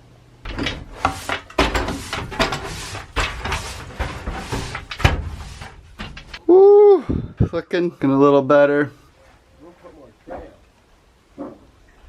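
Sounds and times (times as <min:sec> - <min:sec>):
scraping and clattering in metal van: 0:00.5 - 0:06.4.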